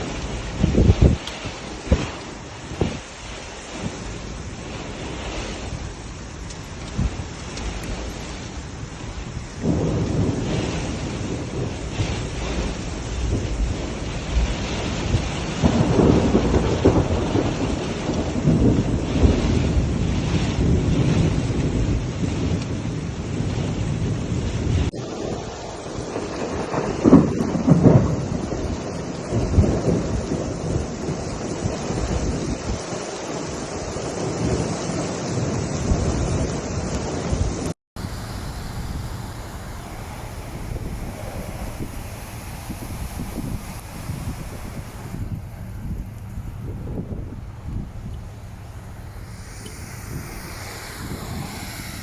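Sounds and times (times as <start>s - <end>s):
floodwater rushing: 0.0s - 18.4s, 38.0s - 52.0s
heavy rain roaring: 0.0s - 22.6s, 24.4s - 35.8s, 38.0s - 52.0s
wind buffeting microphone: 0.0s - 52.0s.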